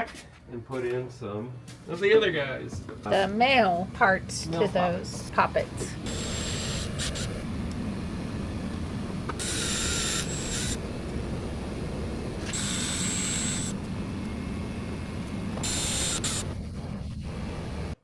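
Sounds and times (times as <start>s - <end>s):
power drill running: 6.0s - 7.4s, 9.3s - 11.0s, 12.4s - 13.9s, 15.5s - 16.5s.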